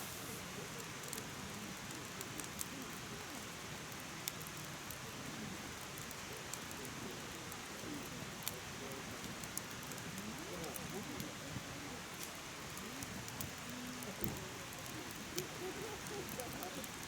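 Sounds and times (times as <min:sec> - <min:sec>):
fire hissing: 0:00.0 - 0:00.6
firewood crackling and popping: 0:00.0 - 0:11.3, 0:12.0 - 0:17.0.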